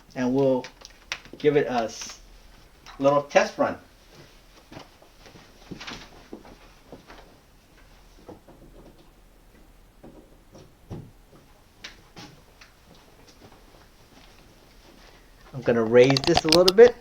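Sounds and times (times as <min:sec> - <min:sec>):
light handling clicks and knocks: 0:15.9 - 0:17.0.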